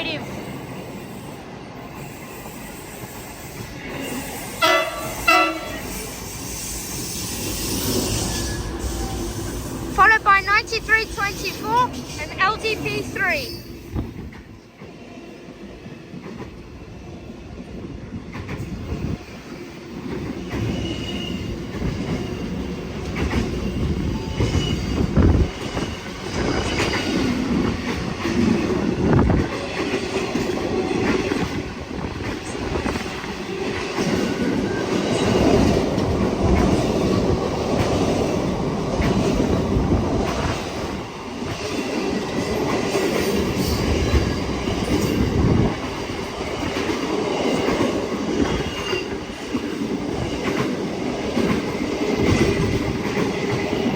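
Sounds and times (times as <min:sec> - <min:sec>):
freight train wagons rolling: 0:02.8 - 0:15.0
faint wheel squeal: 0:05.8 - 0:09.6.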